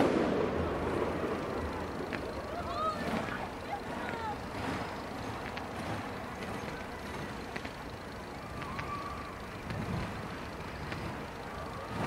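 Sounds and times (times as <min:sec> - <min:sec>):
fireworks sharp cracks: 0:00.0 - 0:01.4
fireworks low rumble: 0:00.0 - 0:12.0.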